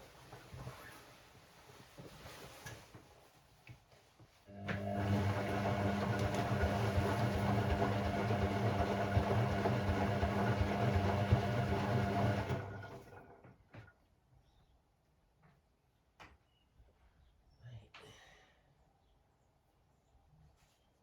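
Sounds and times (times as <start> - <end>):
washing machine churning and rattling: 4.7 - 13.8.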